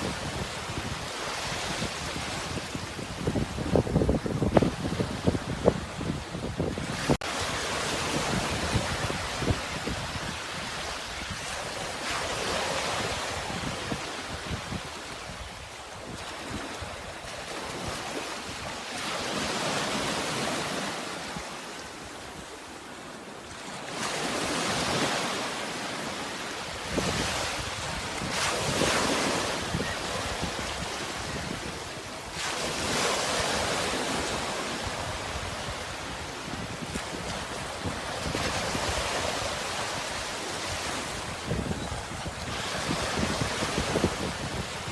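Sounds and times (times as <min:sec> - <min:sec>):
wind rumble on microphone: 0:00.0 - 0:18.8, 0:26.8 - 0:44.9
sea waves breaking: 0:16.0 - 0:44.9.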